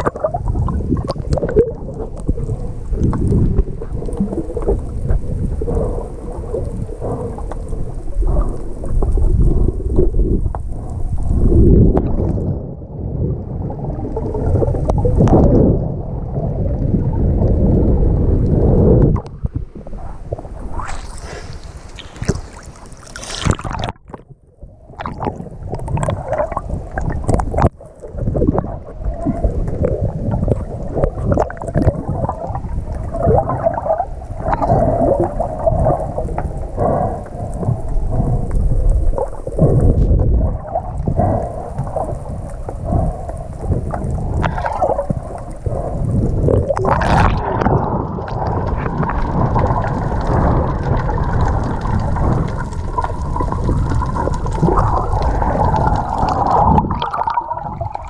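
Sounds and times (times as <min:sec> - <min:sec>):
wind buffeting microphone: 0:00.0 - 0:24.1, 0:25.1 - 0:58.0
water rushing along boat hull: 0:20.5 - 0:24.1.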